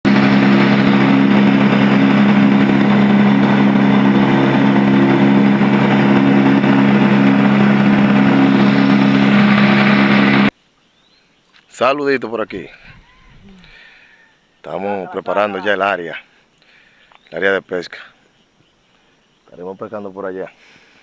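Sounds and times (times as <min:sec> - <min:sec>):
engine droning steadily: 0:00.0 - 0:10.6, 0:14.8 - 0:20.0.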